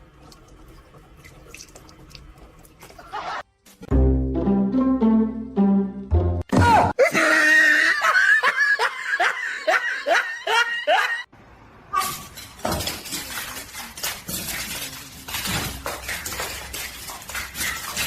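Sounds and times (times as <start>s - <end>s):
laughter in pitched bursts: 7.0s - 11.3s
knocks and clatter: 12.1s - 18.0s.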